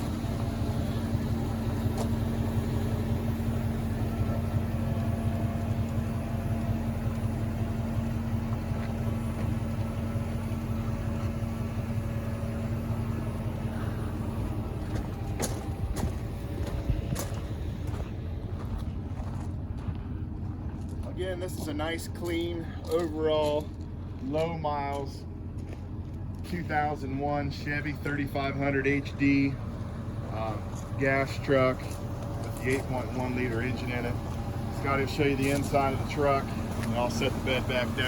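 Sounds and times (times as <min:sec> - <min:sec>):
held hum: 0:00.0 - 0:24.2
truck engine idling: 0:00.0 - 0:38.0.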